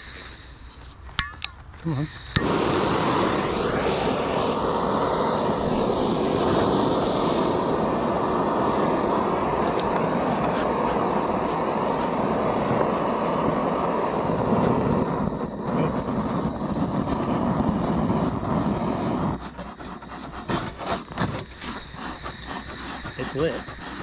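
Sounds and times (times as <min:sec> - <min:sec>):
gas torch hissing: 0:00.0 - 0:24.0.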